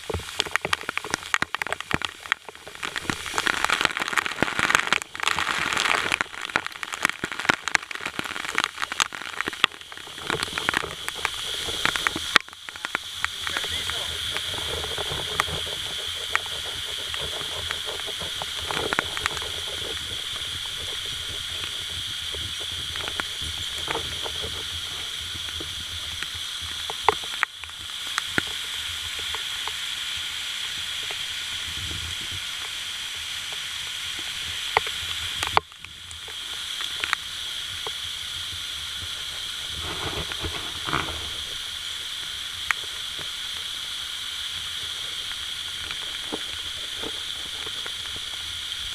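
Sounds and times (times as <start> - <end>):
sharp clicks and knocks: 0.0 - 27.5
waterfall rushing: 1.0 - 27.4.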